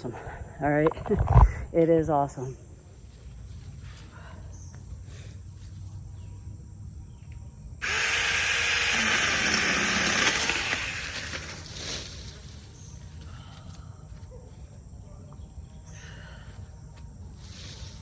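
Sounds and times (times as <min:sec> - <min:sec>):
chainsaw motor cutting: 0:07.8 - 0:11.8.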